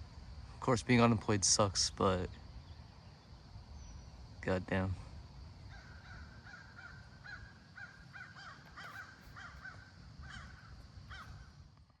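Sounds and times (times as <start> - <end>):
bird calling: 2.3 - 5.0, 5.6 - 11.6.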